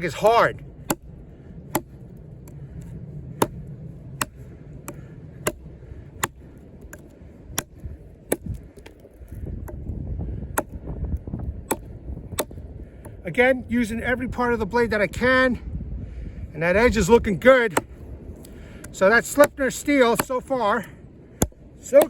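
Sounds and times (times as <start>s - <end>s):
knife chopping frozen log: 0.1s - 1.1s, 1.7s - 2.6s, 3.4s - 3.6s, 4.2s - 9.8s, 10.5s - 10.8s, 11.6s - 13.2s, 18.8s - 20.5s.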